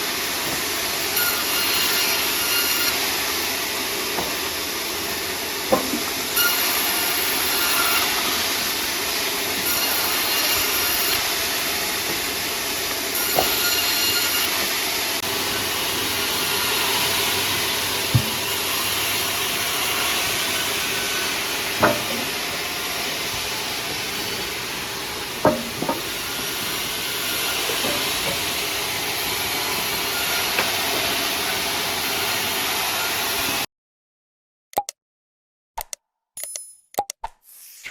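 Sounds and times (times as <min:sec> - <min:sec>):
saw cutting wood: 0:00.0 - 0:33.7
sharp knocks: 0:05.7 - 0:06.1, 0:18.1 - 0:18.7, 0:21.8 - 0:22.5, 0:25.4 - 0:26.2.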